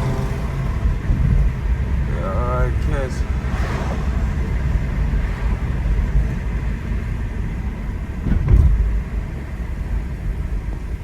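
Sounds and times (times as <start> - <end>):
car engine: 0.0 - 11.0
road rumble: 0.0 - 11.0.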